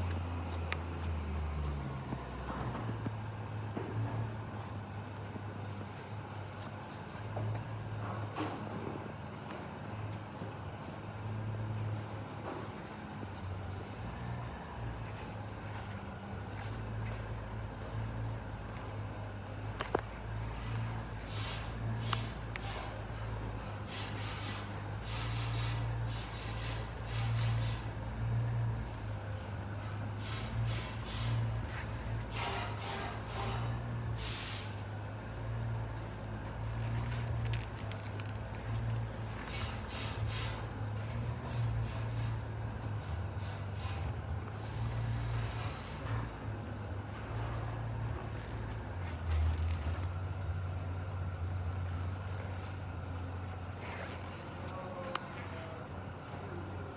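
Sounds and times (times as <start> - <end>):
sharp hissing bursts: 21.2 - 23.0, 23.8 - 27.9, 30.2 - 31.5, 32.2 - 34.8, 39.4 - 40.7, 41.4 - 42.4, 43.0 - 46.1.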